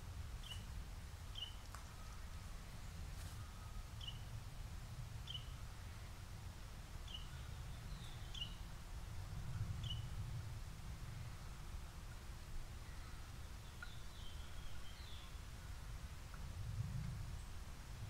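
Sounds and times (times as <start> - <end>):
low outdoor rumble: 0.0 - 18.0
bird chirping: 1.3 - 2.3, 3.4 - 4.2, 5.2 - 5.6, 7.0 - 8.7, 9.8 - 10.1, 12.8 - 15.5.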